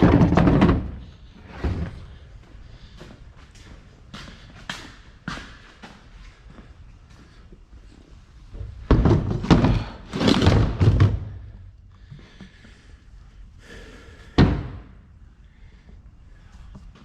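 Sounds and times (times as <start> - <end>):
heavy thuds and bangs: 8.8 - 11.6, 14.3 - 15.0.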